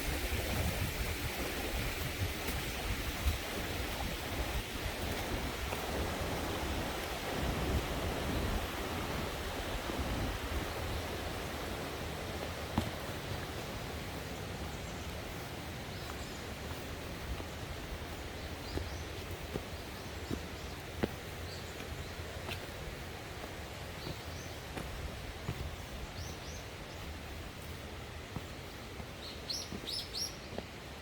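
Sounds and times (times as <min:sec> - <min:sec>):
steady wind: 0:00.0 - 0:31.0.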